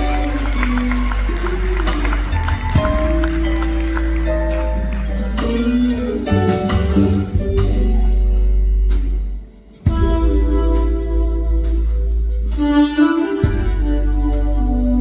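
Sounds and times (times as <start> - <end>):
smooth jazz band playing ballad: 0.0 - 15.0.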